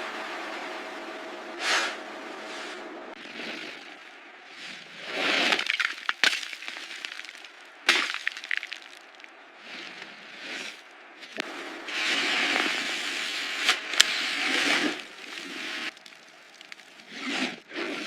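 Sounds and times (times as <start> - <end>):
rushing noise: 0.0 - 5.3
loud cracks with crackles: 5.1 - 9.4, 11.4 - 18.0.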